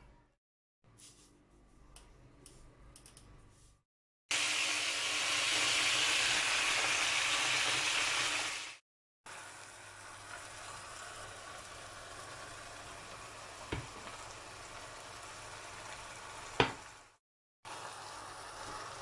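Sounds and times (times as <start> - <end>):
food sizzling in hot oil: 4.3 - 19.0.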